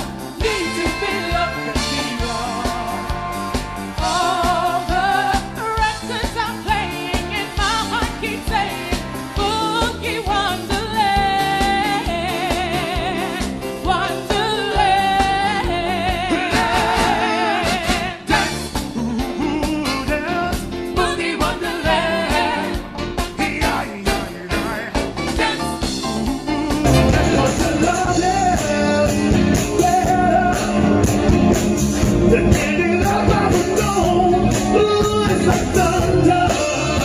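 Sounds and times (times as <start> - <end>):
band playing: 0.0 - 37.0
bass: 0.0 - 37.0
person singing with vibrato: 0.3 - 3.2, 23.4 - 31.0, 32.3 - 37.0
drum beat: 26.7 - 37.0.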